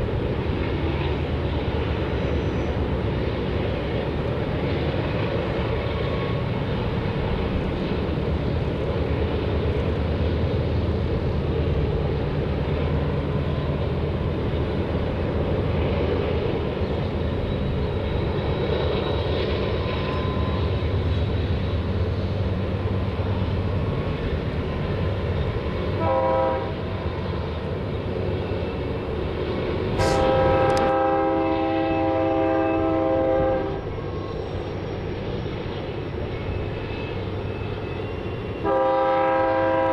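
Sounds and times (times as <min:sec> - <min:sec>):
chord-like horn blast: 0:30.0 - 0:33.7.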